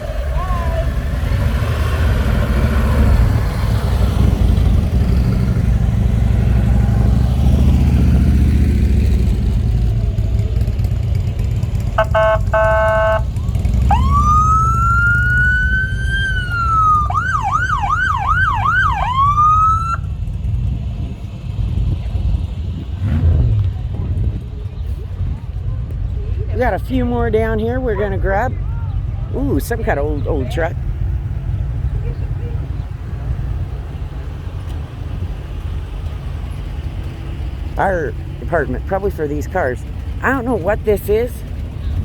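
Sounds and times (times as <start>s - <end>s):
passing vehicle engines rumbling: 0.0s - 42.0s
emergency vehicle siren: 12.0s - 20.3s.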